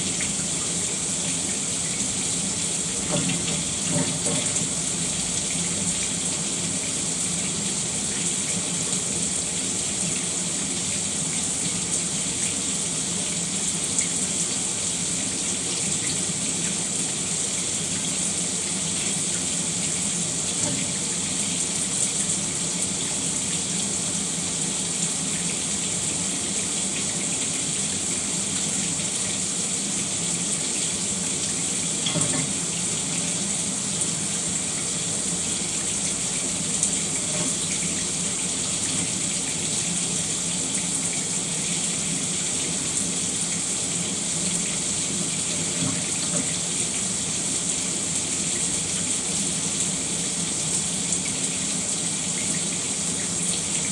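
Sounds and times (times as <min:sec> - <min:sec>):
shower water spraying: 0:00.2 - 0:07.5.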